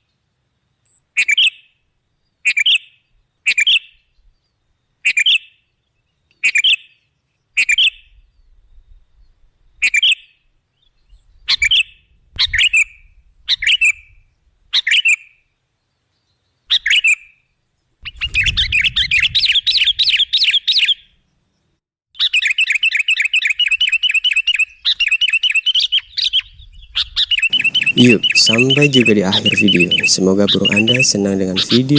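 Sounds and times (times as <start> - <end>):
bulbul calling: 27.4 - 31.9.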